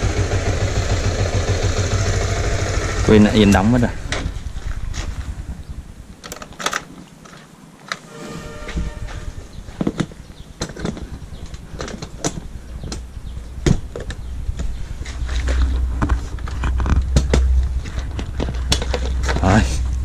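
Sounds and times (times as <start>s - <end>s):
motorcycle engine idling: 0.0s - 4.4s.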